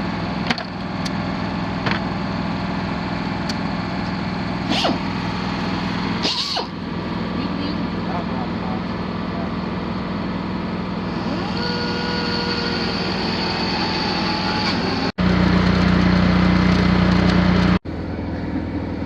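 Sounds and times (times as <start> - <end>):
angle grinder grinding steel: 11.2 - 15.1.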